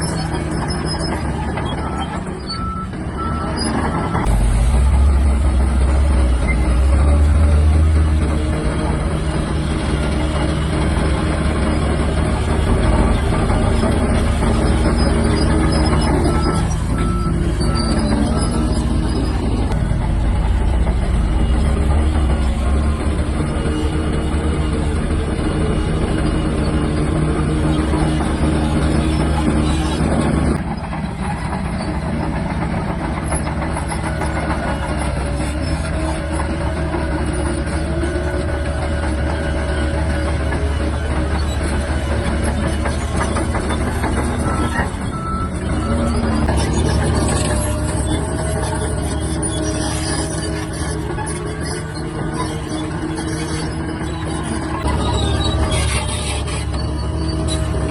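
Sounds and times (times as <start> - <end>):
bulldozer diesel engine running: 0.0 - 57.9
steel tracks clattering: 0.0 - 57.9
short high squeals: 39.4 - 57.9.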